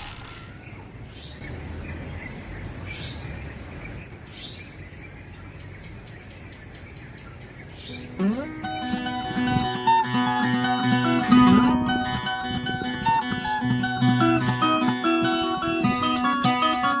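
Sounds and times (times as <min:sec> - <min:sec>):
birds chirping: 0:00.4 - 0:17.0
faint ticking bird calls: 0:04.3 - 0:17.0.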